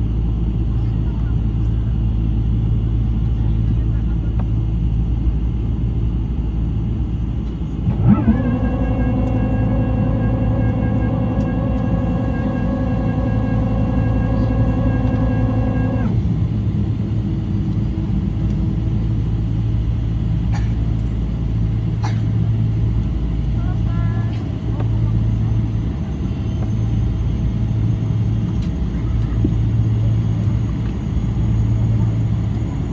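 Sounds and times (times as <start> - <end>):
aircraft cabin rumble: 0.0 - 32.9
humming tone: 6.9 - 22.0.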